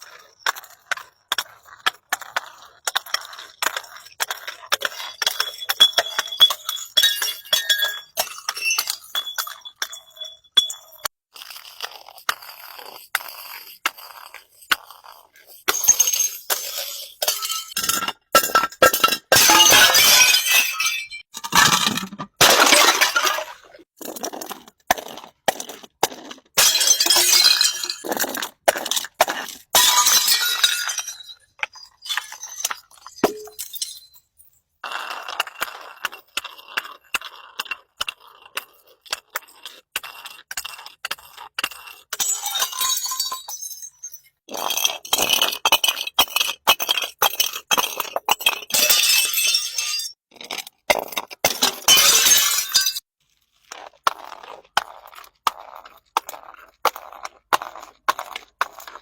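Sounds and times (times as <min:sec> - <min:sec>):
glass bottles clinking and breaking: 0:04.7 - 0:11.1, 0:15.7 - 0:23.8, 0:26.6 - 0:29.0, 0:29.7 - 0:34.5, 0:42.1 - 0:53.0.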